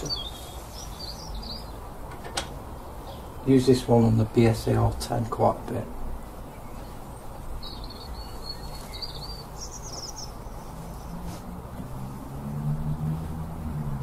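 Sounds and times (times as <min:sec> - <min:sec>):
small bird chirping: 0:00.0 - 0:01.9, 0:06.2 - 0:11.4
outdoor background noise: 0:00.0 - 0:14.0.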